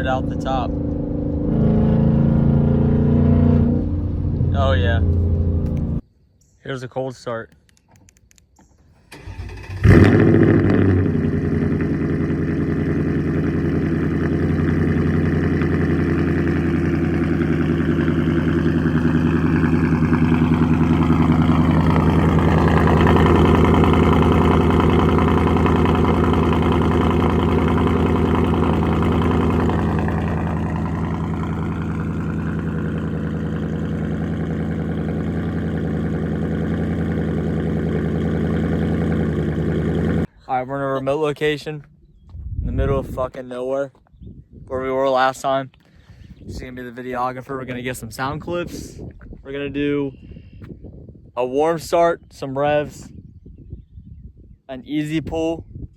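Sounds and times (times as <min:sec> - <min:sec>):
car engine starting: 0:00.0 - 0:06.0, 0:09.0 - 0:40.3
car engine idling: 0:09.0 - 0:40.3.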